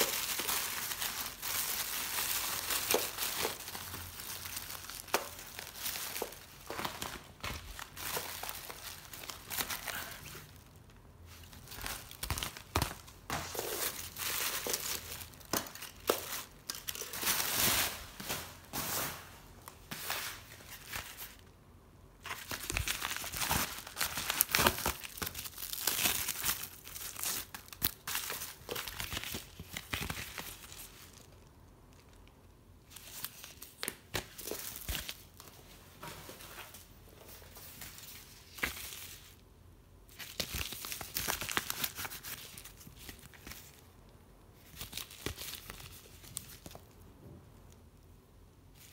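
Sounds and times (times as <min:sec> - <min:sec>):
paper and plastic crinkling: 0:00.0 - 0:21.4, 0:22.2 - 0:32.3.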